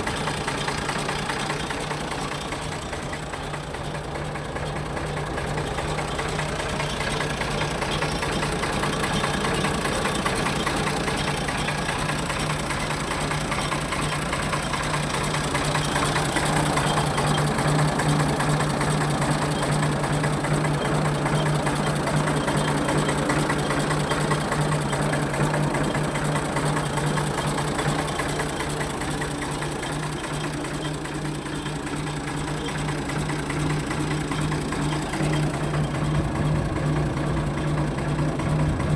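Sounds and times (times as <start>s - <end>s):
tractor engine idling: 0.0s - 38.9s.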